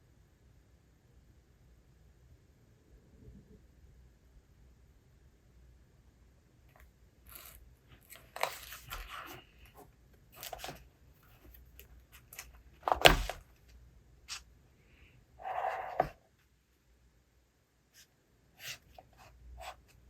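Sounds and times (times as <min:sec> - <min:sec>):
paper pages rustling: 0:07.3 - 0:09.6, 0:10.4 - 0:10.8, 0:11.4 - 0:13.4.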